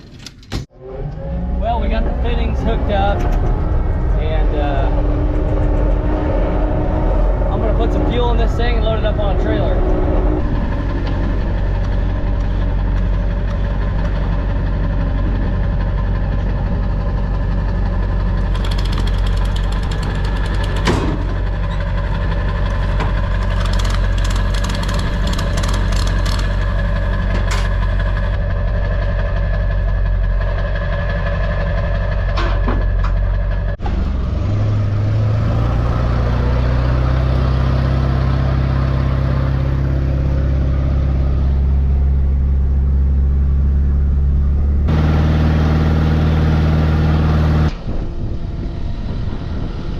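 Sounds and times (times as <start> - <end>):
diesel engine running: 0.7 - 49.9
rapid metallic rattling: 10.7 - 32.5.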